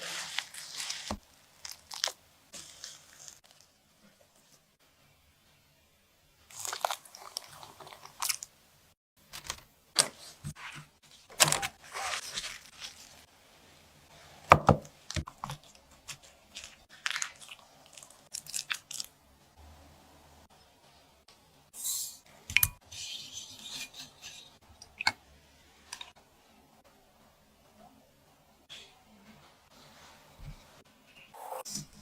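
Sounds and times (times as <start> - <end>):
crisp food crunching and chewing: 0.6 - 3.6, 6.5 - 8.5, 15.3 - 19.1.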